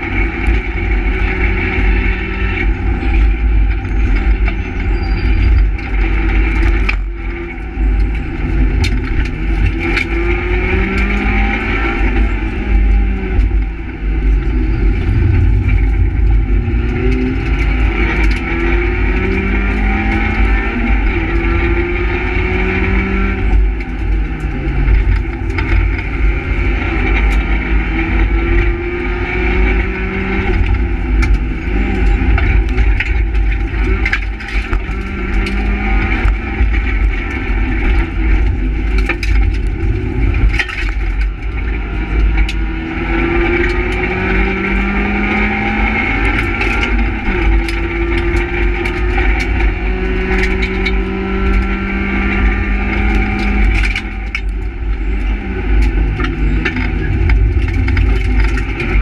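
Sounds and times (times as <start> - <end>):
rally car engine revving: 0.0 - 59.0
road and tyre noise: 0.0 - 59.0.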